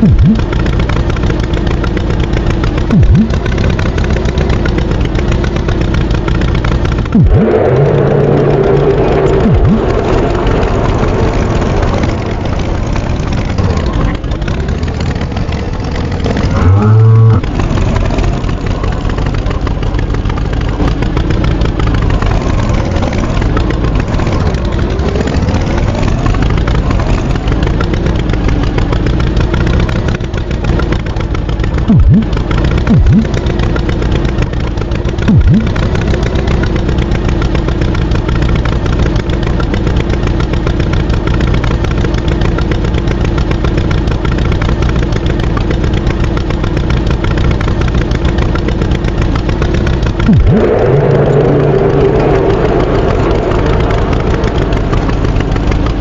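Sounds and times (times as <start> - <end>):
vehicle engine revving: 0.0 - 56.0
short loud low tone: 16.5 - 17.4.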